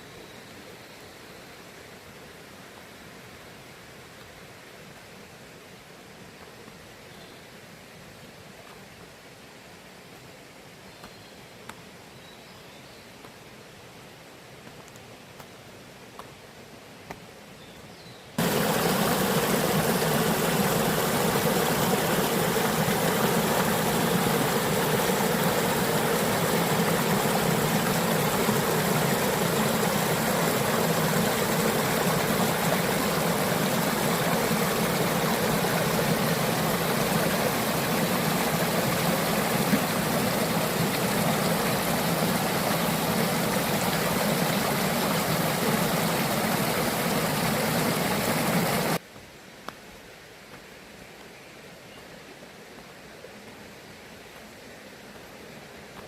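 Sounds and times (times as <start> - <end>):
stream water rushing: 18.4 - 49.0.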